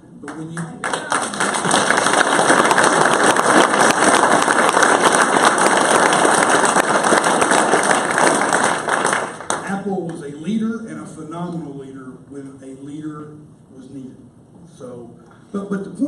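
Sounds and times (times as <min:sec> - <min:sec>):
audience applauding: 0:00.2 - 0:09.8.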